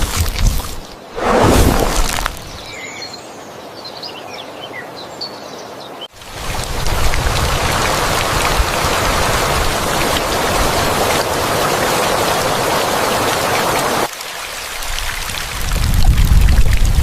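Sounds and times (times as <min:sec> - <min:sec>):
rain hissing: 0:00.0 - 0:02.7.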